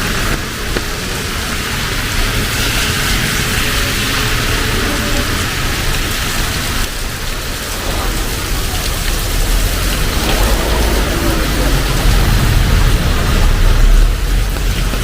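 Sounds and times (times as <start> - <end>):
heavy rain falling: 0.0 - 15.0
low rumble: 7.7 - 15.0.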